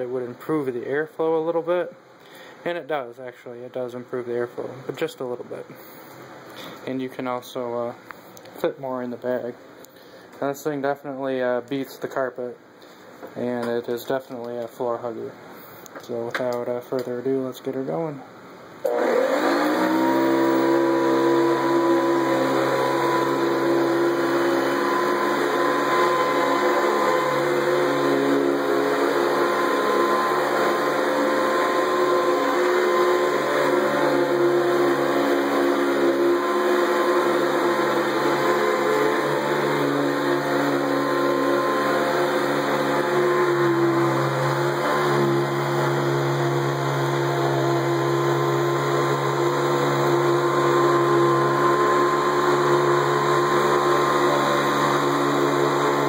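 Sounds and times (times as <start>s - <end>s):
vacuum cleaner motor whining: 18.8s - 56.0s.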